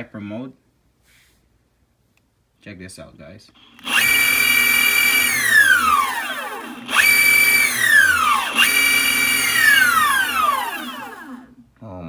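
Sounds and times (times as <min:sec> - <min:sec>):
electric motors whining: 0:03.6 - 0:11.5.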